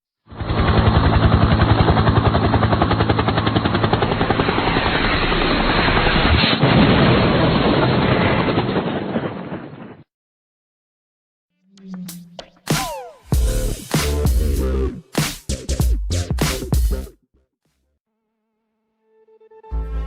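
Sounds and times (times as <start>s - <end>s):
helicopter rotor beating: 0.3s - 6.3s
sharp crack: 4.4s - 10.1s.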